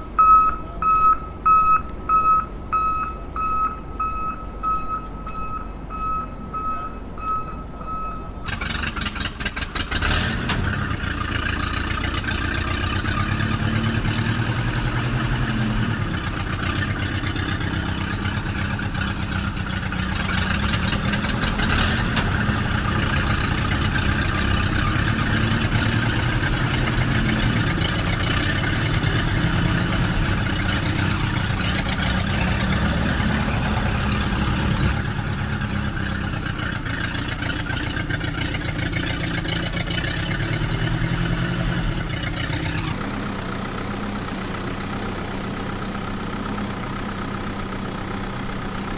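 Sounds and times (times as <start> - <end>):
steady beeping tone: 0.0 - 8.5
vehicle engine cranking and running: 0.0 - 48.9.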